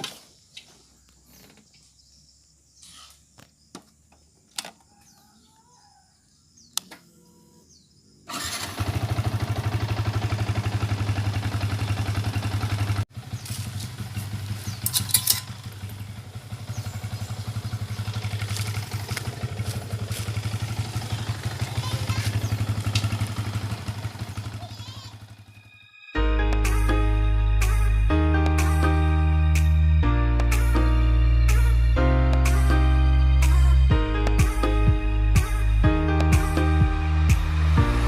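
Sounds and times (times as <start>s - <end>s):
small engine running: 8.3s - 25.6s.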